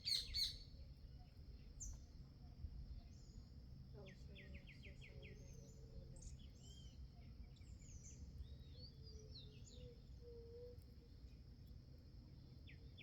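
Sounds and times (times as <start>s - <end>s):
short whistled bird calls: 0.0s - 0.6s
songbirds chirping: 2.8s - 11.5s.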